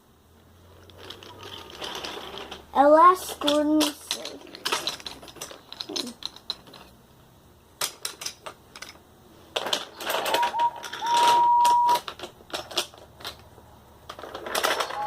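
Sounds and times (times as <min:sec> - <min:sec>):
wooden toy trains clattering: 0:00.7 - 0:07.0, 0:07.8 - 0:15.0
train whistle toots: 0:10.4 - 0:12.0.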